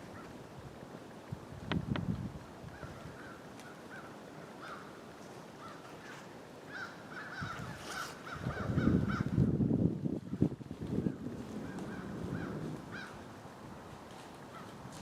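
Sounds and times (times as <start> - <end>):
rustling: 1.9 - 8.4, 10.8 - 15.0
bird calling: 2.7 - 9.4.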